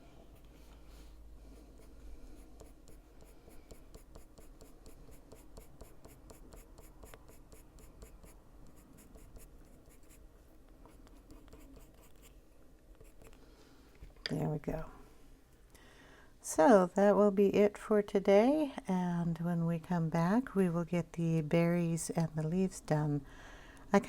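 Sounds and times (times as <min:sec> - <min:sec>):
pencil scratching on paper: 0:01.6 - 0:10.2, 0:10.9 - 0:12.3, 0:13.0 - 0:13.4.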